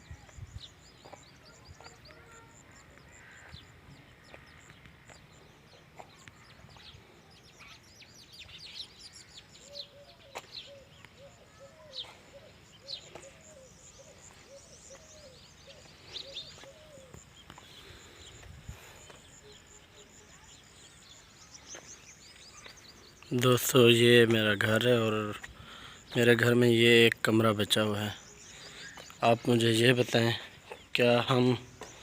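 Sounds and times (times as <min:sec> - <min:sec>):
birds chirping: 0:00.0 - 0:32.0
lower bird call: 0:05.4 - 0:23.4.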